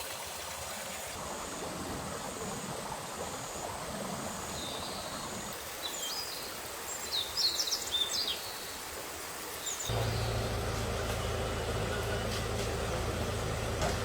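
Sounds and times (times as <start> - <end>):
machine hum with low drone: 9.9 - 14.0.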